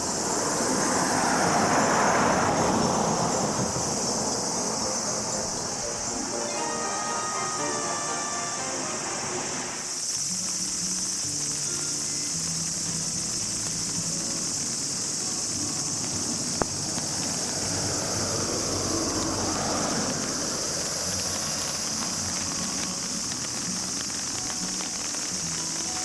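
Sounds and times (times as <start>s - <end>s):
rushing noise: 0.0s - 10.2s
crickets and insects chirping: 0.0s - 26.0s.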